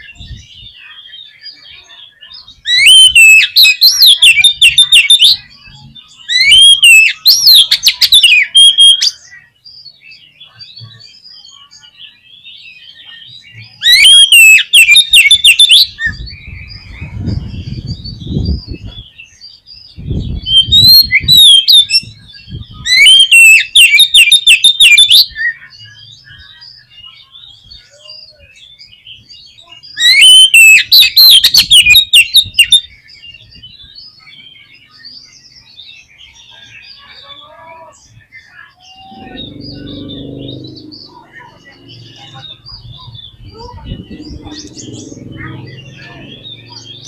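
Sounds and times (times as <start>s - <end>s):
soft bird twittering: 0.0s - 47.0s
bird whistling and trilling: 2.6s - 9.5s, 10.4s - 37.2s.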